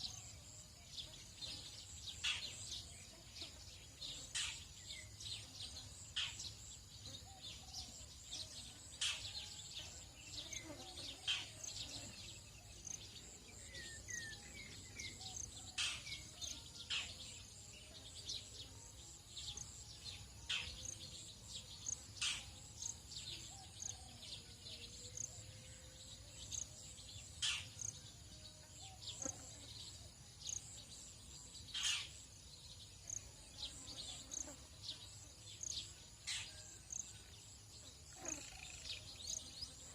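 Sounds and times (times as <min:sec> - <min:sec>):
birds chirping and calling: 0:10.6 - 0:17.4, 0:21.8 - 0:24.2, 0:27.3 - 0:28.0, 0:31.6 - 0:32.2.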